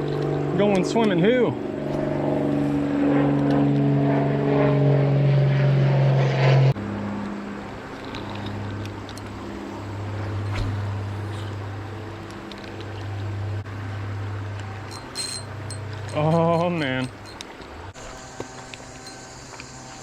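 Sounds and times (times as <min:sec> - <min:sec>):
engine drone: 0:00.0 - 0:20.0.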